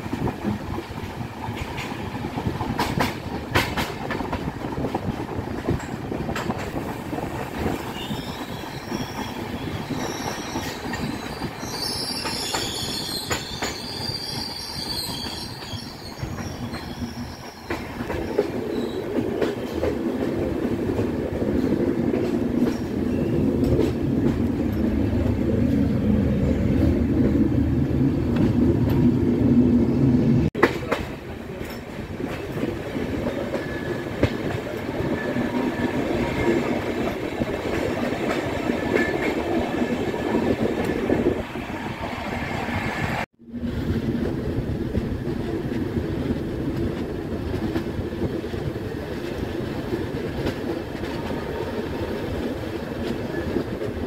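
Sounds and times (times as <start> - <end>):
train wheels rumbling on rails: 0.0 - 54.0
high wheel squeal: 7.8 - 19.0.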